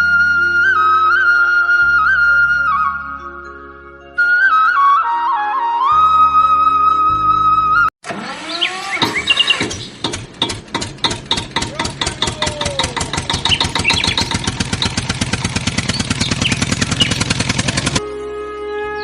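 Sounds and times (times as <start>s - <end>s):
tractor engine chugging: 8.1s - 18.0s.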